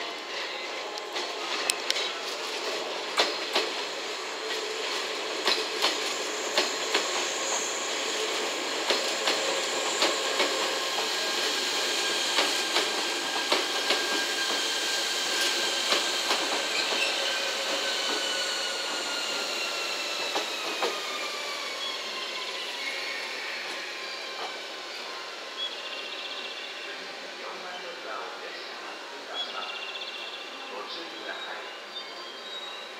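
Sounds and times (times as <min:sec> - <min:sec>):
train wheels clicking over rail joints: 0:03.1 - 0:03.8, 0:04.5 - 0:07.6, 0:08.8 - 0:11.2, 0:12.3 - 0:14.6, 0:15.3 - 0:19.1, 0:20.2 - 0:21.1.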